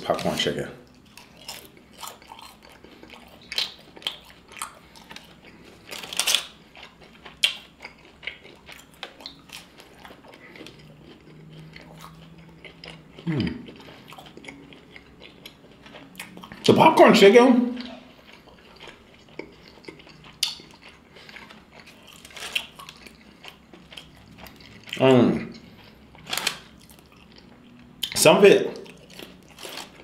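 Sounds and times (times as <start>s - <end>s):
crunchy chewing: 0.1s - 16.7s, 17.8s - 30.0s
person humming: 13.2s - 13.6s.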